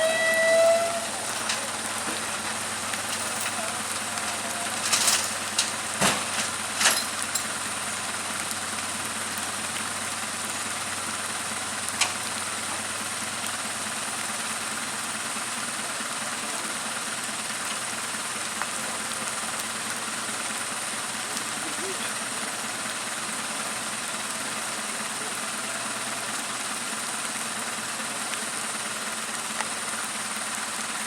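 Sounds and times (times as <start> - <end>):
vehicle engine idling: 0.0 - 31.0.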